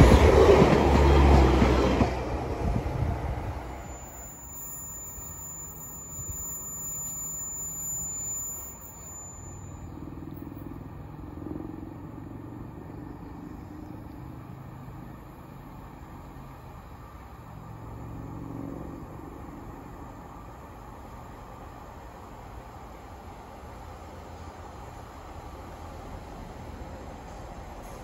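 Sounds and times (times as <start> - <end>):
distant train rumble: 0.0 - 28.0
thin high steady tone: 3.6 - 10.6.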